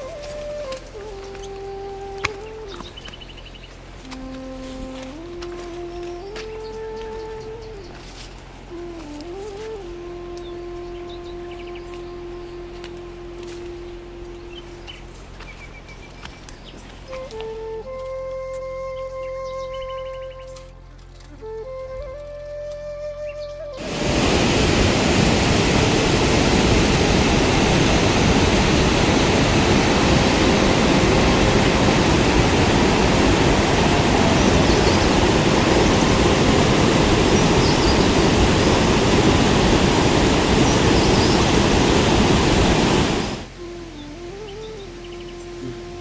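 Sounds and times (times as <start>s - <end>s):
loud rush of water: 23.8s - 43.9s.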